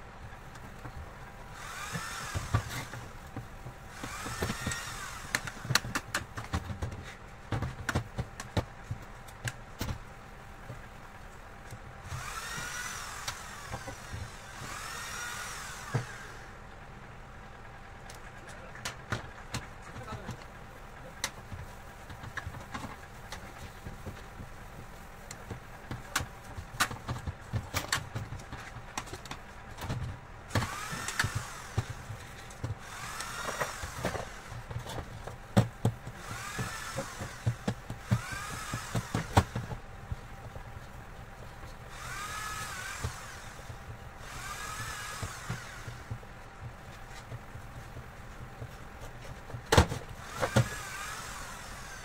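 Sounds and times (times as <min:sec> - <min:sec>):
sharp clicks and knocks: 0:01.9 - 0:10.0, 0:25.2 - 0:50.9
short rising and falling whir: 0:12.0 - 0:16.6, 0:41.9 - 0:46.2.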